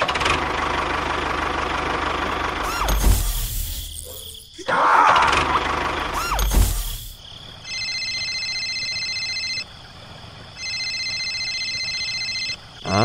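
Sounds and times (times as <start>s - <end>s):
gliding cartoon sound effect: 6.1s - 6.6s
phone ringtone trilling: 7.6s - 9.6s, 10.6s - 12.6s.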